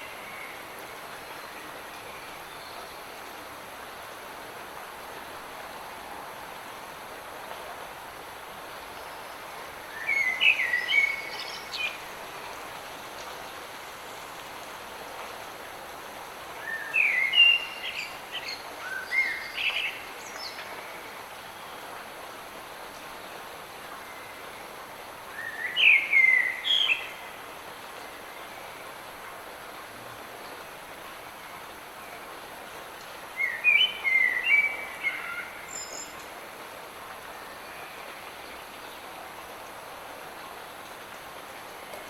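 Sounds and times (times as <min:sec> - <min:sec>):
light rain: 0:00.0 - 0:42.0
songbird singing: 0:09.0 - 0:12.1, 0:16.6 - 0:21.8, 0:25.3 - 0:27.4, 0:33.3 - 0:36.3.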